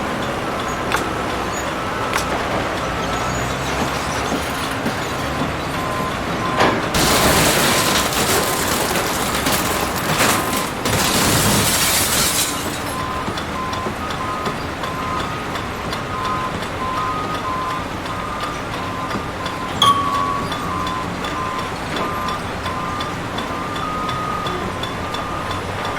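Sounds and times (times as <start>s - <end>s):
heavy machine engine running: 0.0s - 25.9s
debris crashing and grinding: 6.9s - 13.2s.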